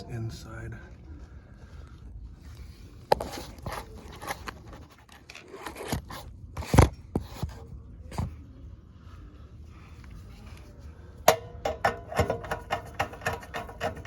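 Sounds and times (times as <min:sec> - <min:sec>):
metal parts and tools clicking: 0:11.3 - 0:14.0.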